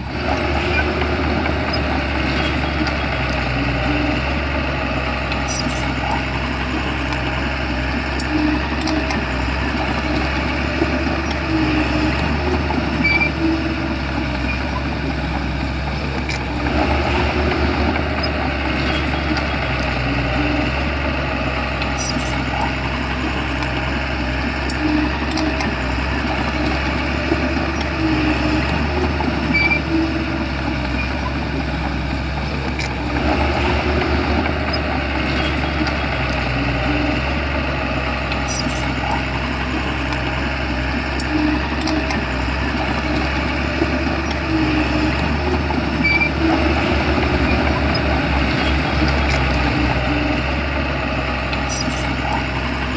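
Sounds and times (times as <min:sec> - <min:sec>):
bulldozer diesel engine running: 0:00.0 - 0:52.9
sharp metallic clicks: 0:38.3 - 0:39.3, 0:51.5 - 0:52.5.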